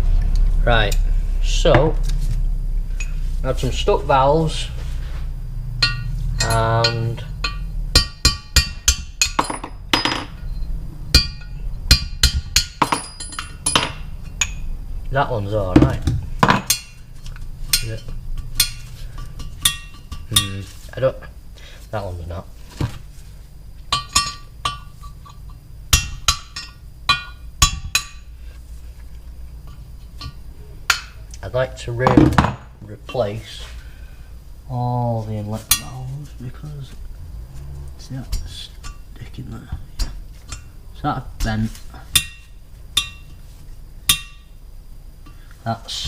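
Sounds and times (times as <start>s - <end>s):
hammer striking metal socket: 23.9s - 28.2s.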